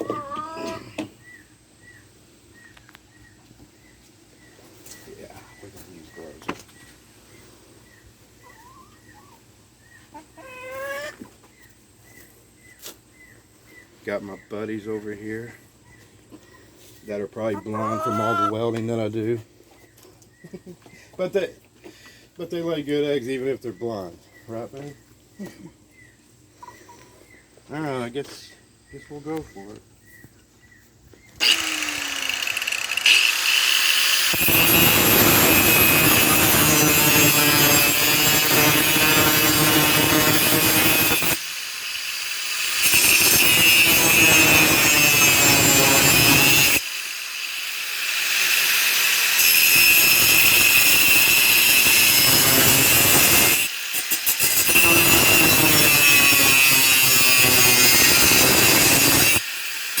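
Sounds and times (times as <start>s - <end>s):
rotary cut-off tool grinding steel: 31.4s - 60.0s.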